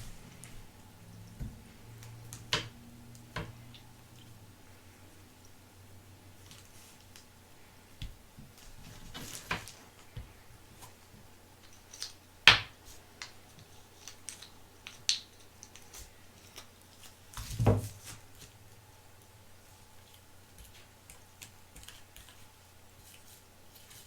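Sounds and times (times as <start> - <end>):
small objects clicking and tapping: 11.6 - 17.5
knocks and rustling: 17.4 - 18.2.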